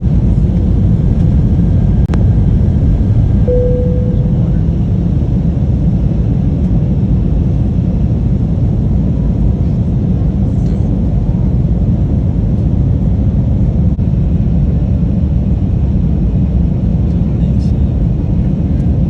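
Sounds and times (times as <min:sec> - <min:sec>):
vehicle rumble from inside: 0:00.0 - 0:05.4, 0:09.3 - 0:14.2.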